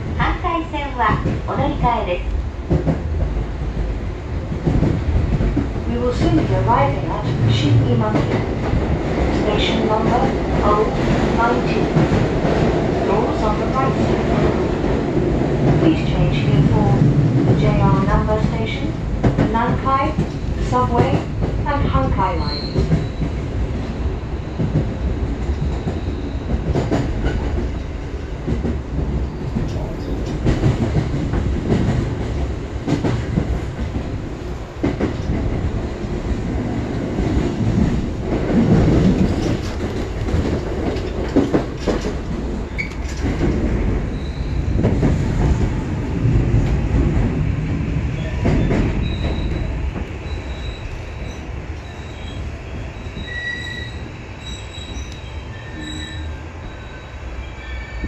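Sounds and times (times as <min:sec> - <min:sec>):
train knocks and clacks: 0:00.0 - 0:58.0
train wheels rumbling on rail: 0:00.0 - 0:58.0
high brake squeals: 0:22.4 - 0:23.2, 0:53.0 - 0:58.0.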